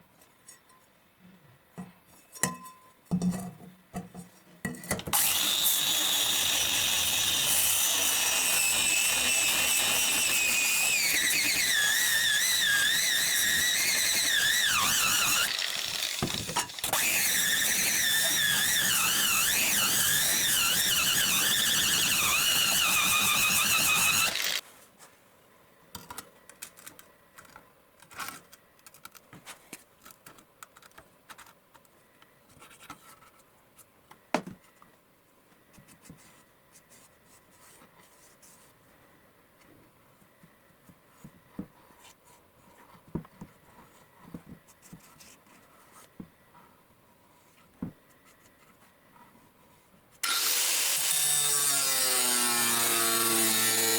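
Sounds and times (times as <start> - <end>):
power tool grinding steel: 5.1 - 24.6, 50.2 - 53.9.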